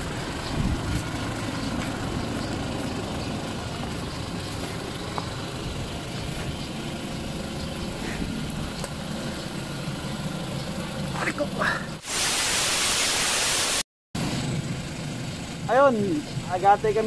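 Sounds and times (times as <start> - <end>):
car engine idling: 0.0 - 12.0, 14.2 - 17.0.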